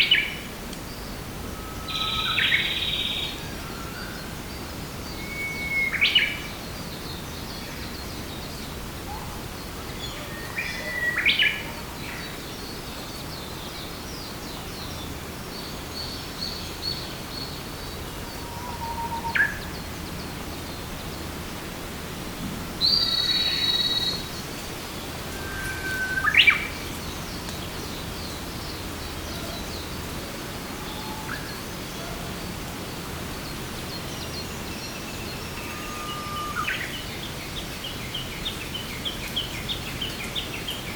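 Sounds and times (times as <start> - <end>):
background hiss: 0.0 - 40.9
songbirds whistling: 1.0 - 6.5, 18.2 - 19.9, 22.8 - 30.1, 33.9 - 40.9.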